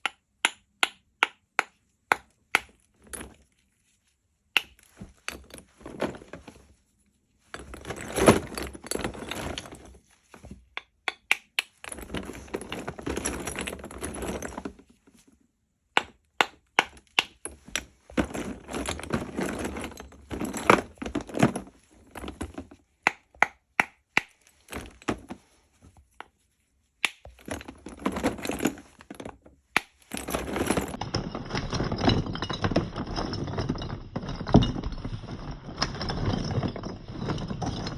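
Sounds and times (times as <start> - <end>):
gritty crumbling: 27.0 - 37.9.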